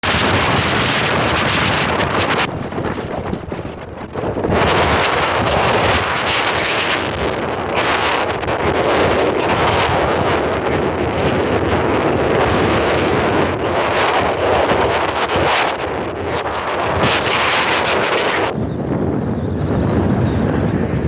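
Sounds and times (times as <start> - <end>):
strong gusting wind: 0.0 - 21.0
wind buffeting microphone: 0.0 - 21.0.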